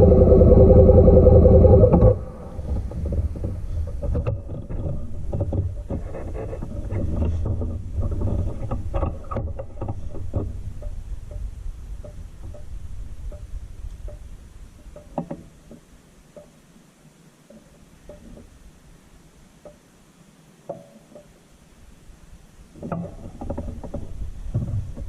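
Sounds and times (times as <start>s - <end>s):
low rumble: 0.0s - 4.0s
irregular knocks and clicks: 2.8s - 16.6s, 17.5s - 18.6s, 22.8s - 25.0s.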